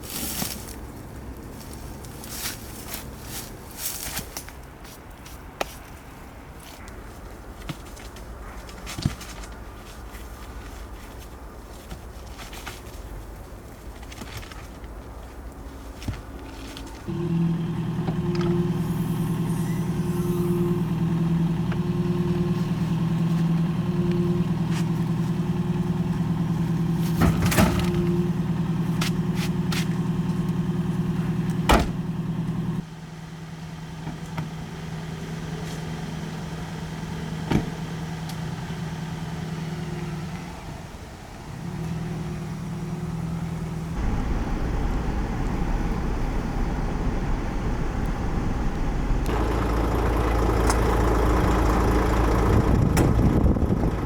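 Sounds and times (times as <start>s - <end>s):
engine droning hum: 0.0s - 54.0s
low rumble: 17.2s - 28.2s, 44.0s - 54.0s.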